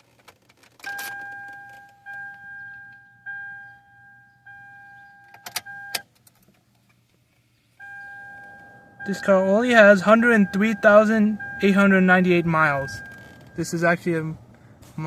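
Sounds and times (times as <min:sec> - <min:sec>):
car warning chime: 0:00.8 - 0:06.1, 0:07.8 - 0:14.0
key clicking in ignition: 0:05.0 - 0:07.0, 0:12.8 - 0:13.6.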